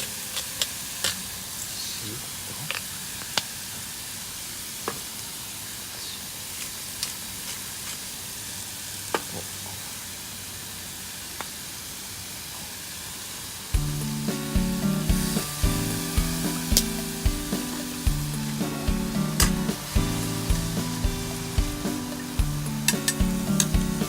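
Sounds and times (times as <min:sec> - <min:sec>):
food sizzling in a pan: 0:00.0 - 0:24.0
background music with a beat: 0:13.8 - 0:24.0.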